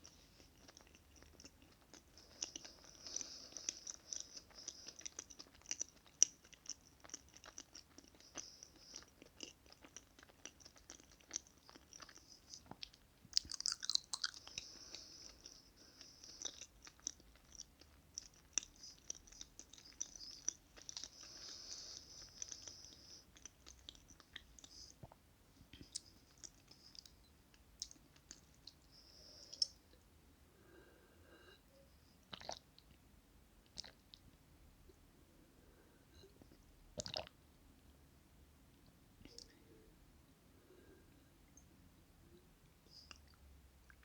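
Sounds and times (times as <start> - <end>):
chewing soft cake: 0.0 - 44.0
mouth clicks and smacks: 0.6 - 14.6, 16.3 - 21.6, 22.3 - 28.9, 29.5 - 29.8.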